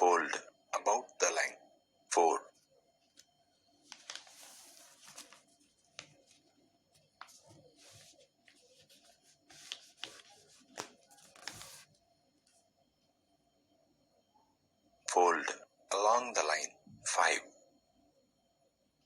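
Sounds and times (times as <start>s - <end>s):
paper rustling and crackling: 3.1s - 12.6s.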